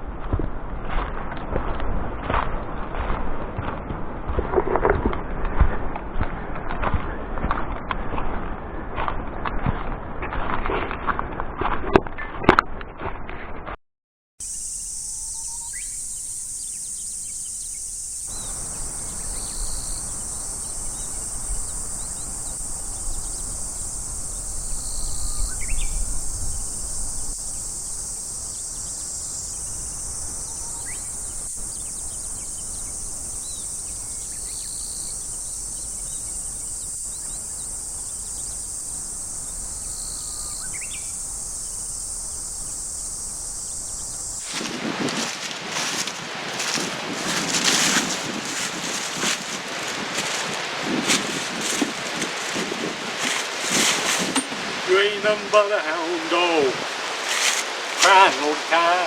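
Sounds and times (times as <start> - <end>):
insect chorus drone: 14.4 - 59.0.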